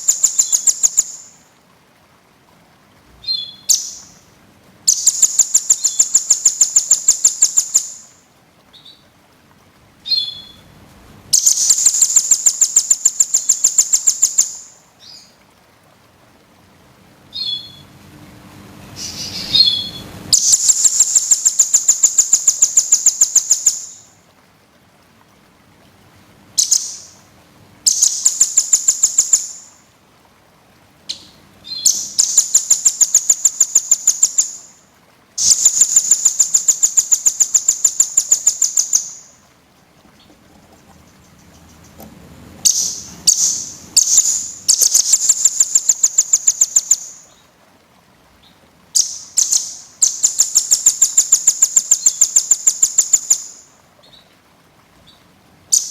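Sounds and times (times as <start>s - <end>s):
bird calls: 0.0s - 1.4s, 3.2s - 4.2s, 4.9s - 9.1s, 10.0s - 10.7s, 11.3s - 15.4s, 17.3s - 17.9s, 18.9s - 24.1s, 26.6s - 27.2s, 27.8s - 29.8s, 31.1s - 34.7s, 35.4s - 47.5s, 48.4s - 54.4s
songbird trilling: 0.0s - 1.4s, 3.2s - 4.2s, 4.9s - 9.1s, 10.0s - 10.7s, 11.3s - 15.3s, 17.3s - 17.9s, 19.0s - 24.1s, 26.6s - 27.2s, 27.8s - 29.8s, 31.1s - 34.7s, 35.4s - 39.4s, 40.7s - 47.4s, 49.0s - 54.3s.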